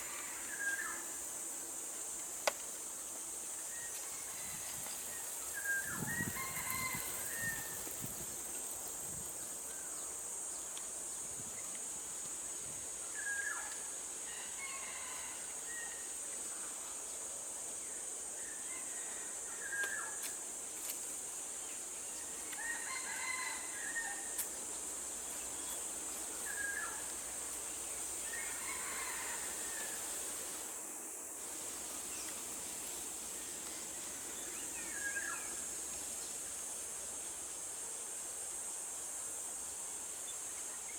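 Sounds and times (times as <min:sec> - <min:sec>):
high-pitched insect drone: 0:03.6 - 0:10.1.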